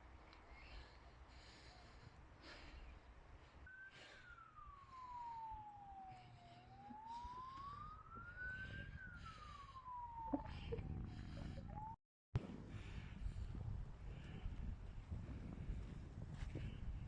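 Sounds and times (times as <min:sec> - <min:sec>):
emergency vehicle siren wailing: 0:03.6 - 0:12.0.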